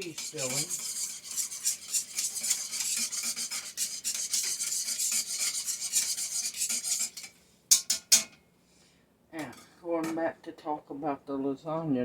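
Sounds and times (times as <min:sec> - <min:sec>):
utensil scraping a pot: 0:00.0 - 0:08.3.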